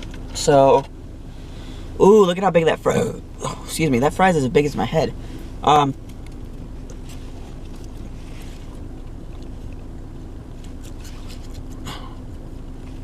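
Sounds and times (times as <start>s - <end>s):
car heater hum: 0.0s - 13.0s
faint clicks and rustles: 5.9s - 13.0s.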